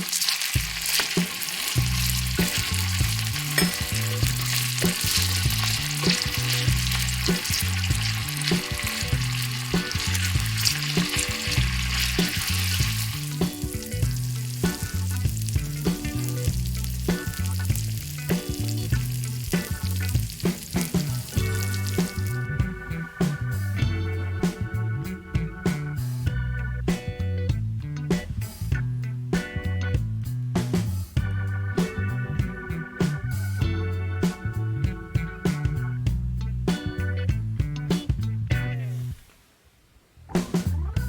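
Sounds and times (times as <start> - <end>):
food sizzling in hot oil: 0.0 - 22.4
stirring in a pan: 0.0 - 22.4
background music with bass line: 0.0 - 39.2, 40.3 - 41.0.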